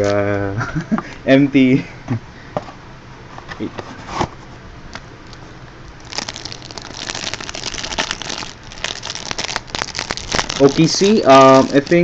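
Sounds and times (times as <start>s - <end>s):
foil wrapper crinkling and tearing: 6.0s - 12.0s.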